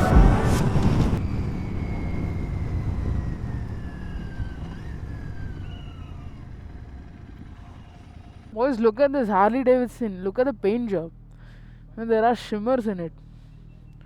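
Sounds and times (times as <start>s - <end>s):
high whine falling in pitch: 0.0s - 1.9s
motorcycle and road noise: 0.0s - 14.0s.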